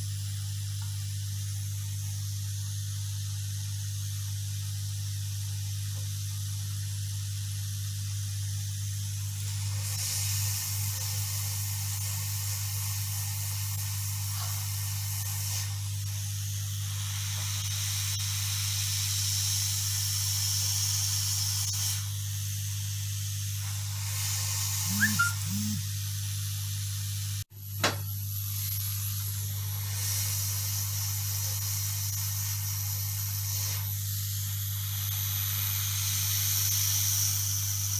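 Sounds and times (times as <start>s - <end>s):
hot air station hissing: 8.6s - 25.9s, 27.8s - 37.9s.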